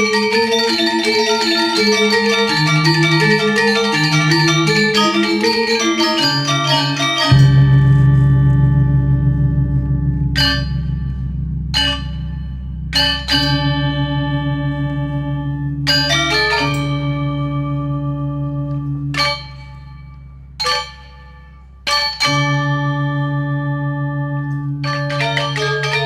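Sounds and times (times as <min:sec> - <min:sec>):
bell-like metal percussion: 0:00.0 - 0:26.0
steady low drone: 0:07.3 - 0:21.9.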